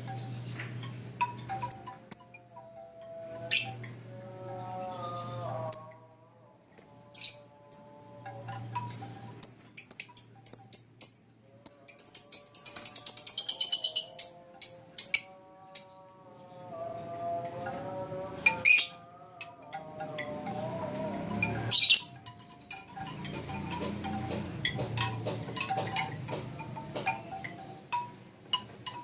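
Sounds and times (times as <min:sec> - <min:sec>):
bird chirping: 0:00.0 - 0:06.1, 0:06.7 - 0:29.0.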